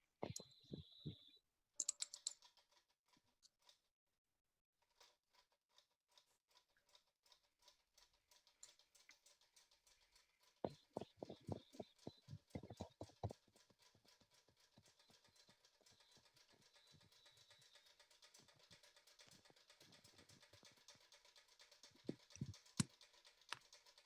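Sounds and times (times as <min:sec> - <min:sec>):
small engine fast ticking: 0:07.3 - 0:24.0
engine knocking: 0:08.2 - 0:24.0.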